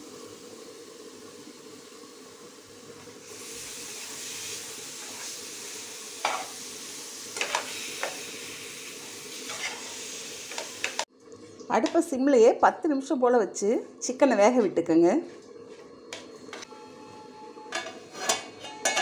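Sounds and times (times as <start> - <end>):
chicken sizzling in a pan: 0.0 - 11.1
metal spatula stirring: 9.5 - 9.9, 17.8 - 19.0.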